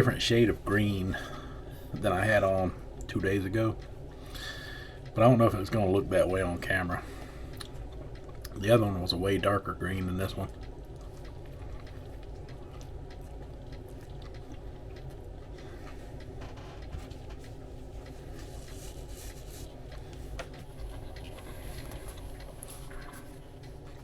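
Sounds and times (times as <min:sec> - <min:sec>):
low room hum: 0:00.0 - 0:24.0
small eating clicks: 0:00.0 - 0:24.0
person chewing food: 0:07.0 - 0:08.6, 0:10.4 - 0:24.0.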